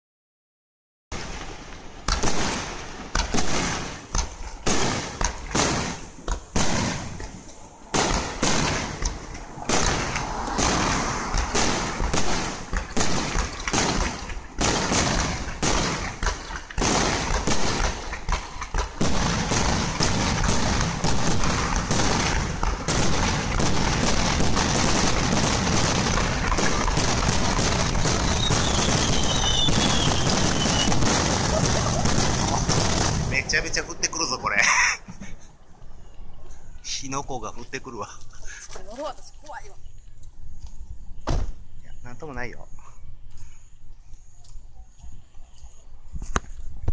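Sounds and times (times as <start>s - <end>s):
fireworks shells bursting: 1.2s - 35.4s.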